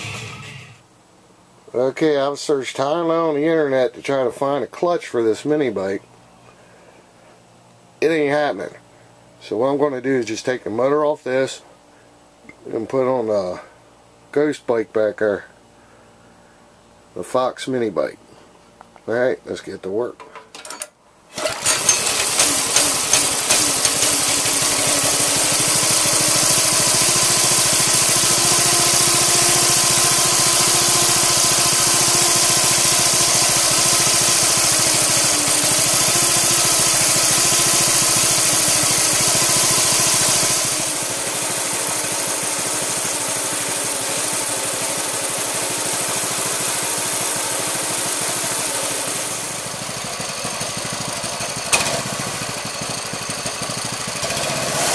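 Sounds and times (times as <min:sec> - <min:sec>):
motor running with hiss and hum: 0:21.4 - 0:54.9.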